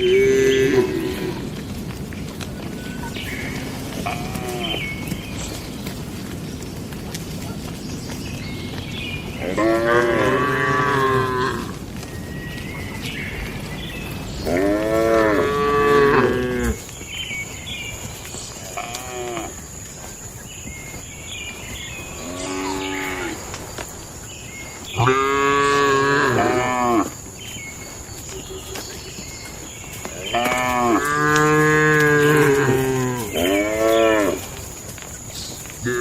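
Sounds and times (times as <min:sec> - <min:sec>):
cattle mooing: 0:09.4 - 0:11.7, 0:14.5 - 0:16.8.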